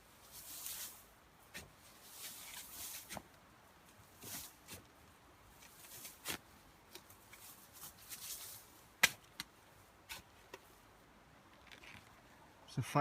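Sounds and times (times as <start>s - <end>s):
soil scraping: 0.2s - 3.3s.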